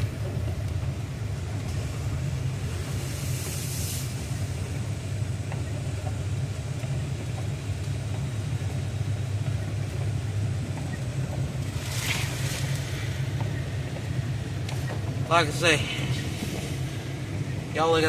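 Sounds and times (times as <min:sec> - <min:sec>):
vehicle engine and road rumble: 0:00.0 - 0:18.0
brief hiss: 0:02.9 - 0:04.4.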